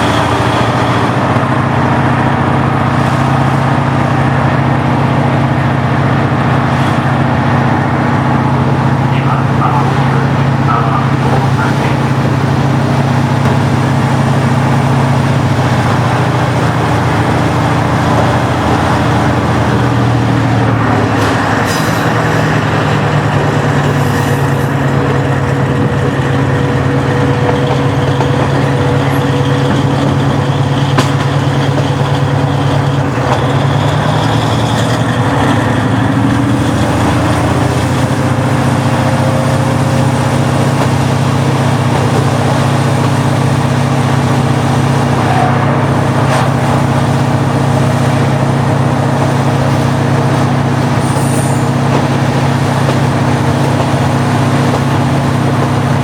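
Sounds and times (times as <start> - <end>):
diesel railcar engine drone: 0.0 - 56.0
thin steady whine: 1.7 - 36.8.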